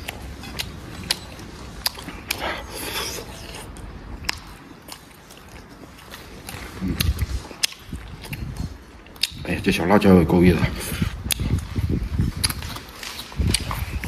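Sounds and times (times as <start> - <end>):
person chewing: 0.0 - 9.4, 11.0 - 14.0
mouth clicks and smacks: 3.2 - 9.5, 11.0 - 14.0.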